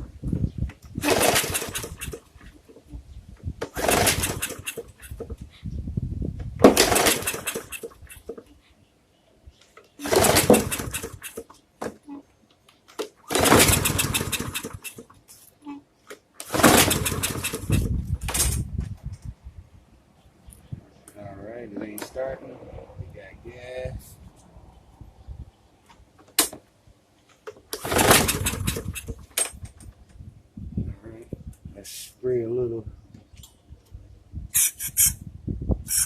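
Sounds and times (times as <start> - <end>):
recoil starter pulls cranking engine: 1.0 - 2.3, 3.7 - 5.1, 6.7 - 8.1, 10.0 - 11.4, 13.3 - 15.0, 16.4 - 18.6, 27.8 - 29.4.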